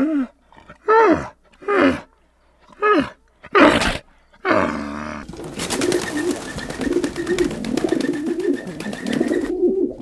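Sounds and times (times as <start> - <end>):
birds cooing: 4.6 - 10.0.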